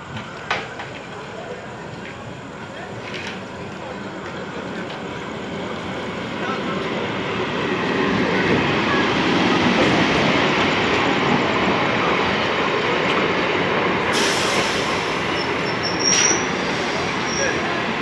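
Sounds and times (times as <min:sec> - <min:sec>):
train wheels rumbling on rail: 0:00.0 - 0:18.0
high hiss: 0:14.1 - 0:17.8
train wheels squealing: 0:14.2 - 0:17.8.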